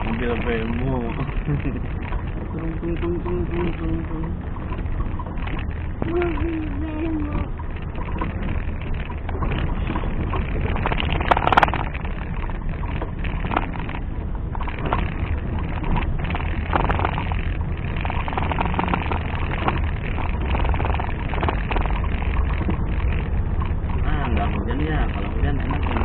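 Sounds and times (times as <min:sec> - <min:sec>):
knocks and rattles: 0:00.0 - 0:26.0
vehicle engine running: 0:00.0 - 0:26.0.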